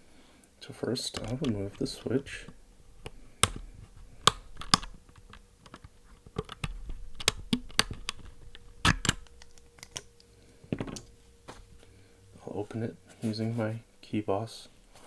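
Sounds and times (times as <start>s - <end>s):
sharp plastic clicks: 1.1s - 10.3s.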